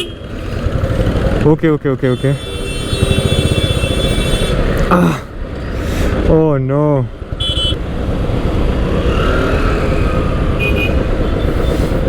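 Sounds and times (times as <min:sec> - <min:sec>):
car horn beeps: 0:00.0 - 0:00.2, 0:07.4 - 0:07.8
car engines rumbling: 0:00.0 - 0:12.0.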